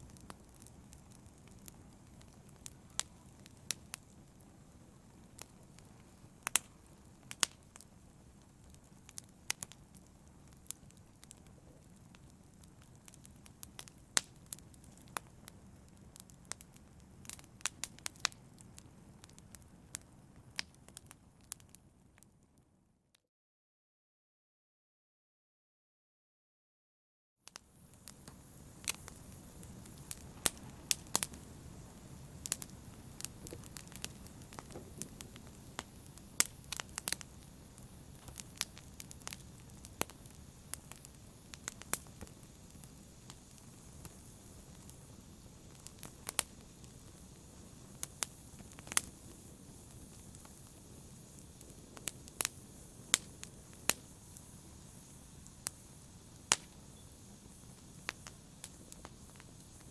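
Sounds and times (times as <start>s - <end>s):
fire crackling in fireplace: 0.0s - 22.8s, 27.4s - 59.9s.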